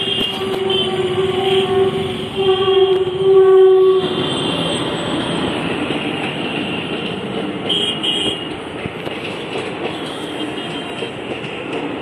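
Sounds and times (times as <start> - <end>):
passenger train rumbling past: 0.0 - 12.0.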